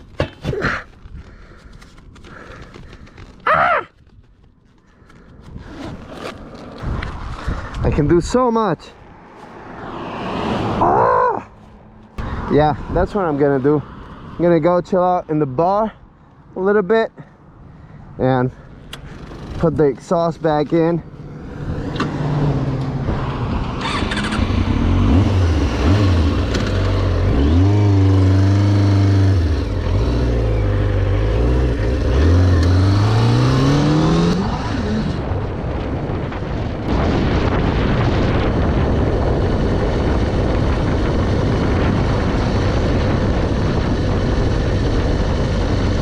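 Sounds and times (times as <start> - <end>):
motorcycle engine revving: 21.2 - 35.6.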